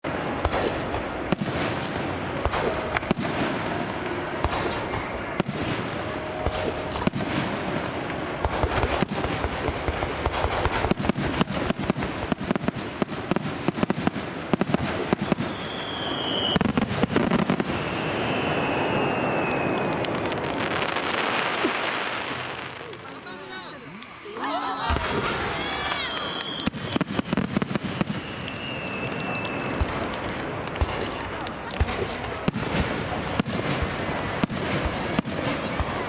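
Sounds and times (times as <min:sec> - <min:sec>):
fireworks bangs and crackles: 0:00.0 - 0:36.0
whistling tones: 0:15.2 - 0:16.7, 0:17.6 - 0:20.2, 0:25.6 - 0:29.9.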